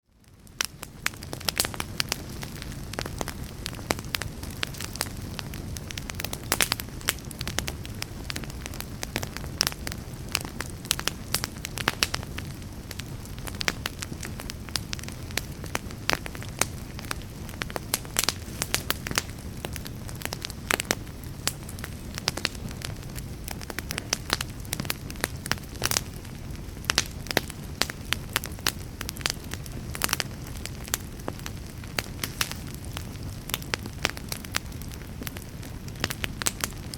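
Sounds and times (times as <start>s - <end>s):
fire popping and snapping: 0.0s - 36.9s
low rumble of flames: 0.0s - 36.9s
wood fire crackling: 0.0s - 36.9s.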